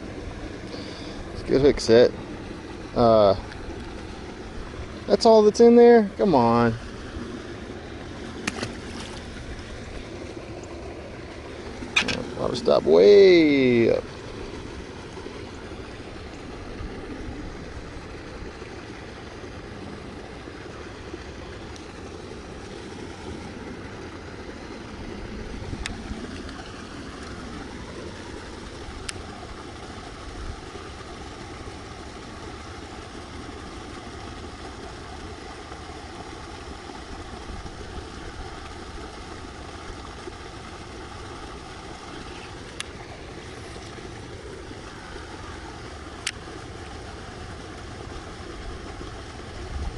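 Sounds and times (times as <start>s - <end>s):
stream water rushing into pond: 0.0s - 49.9s
faint clicks: 46.2s - 46.4s.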